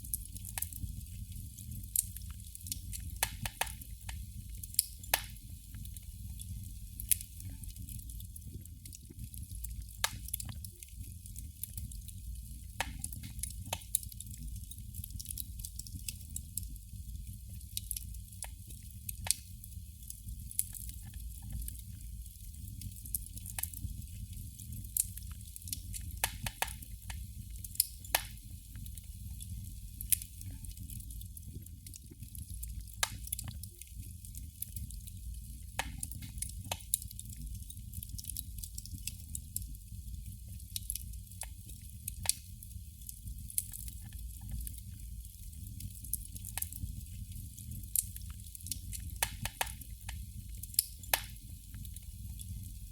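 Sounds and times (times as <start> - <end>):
candle flame crackling: 0.0 - 52.9.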